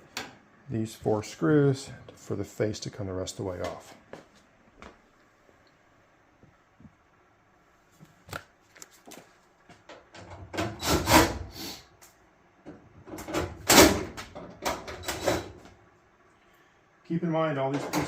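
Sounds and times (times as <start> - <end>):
screws scraping sheet metal: 10.6 - 11.8.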